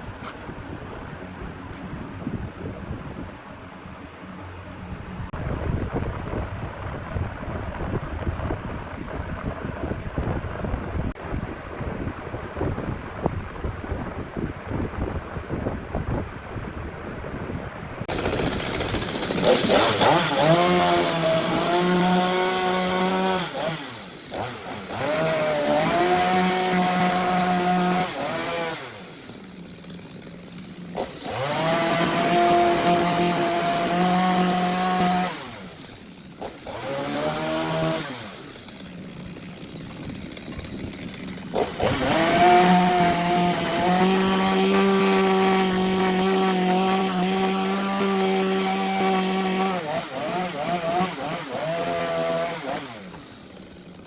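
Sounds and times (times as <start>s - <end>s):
chainsaw cutting log: 18.1s - 54.0s.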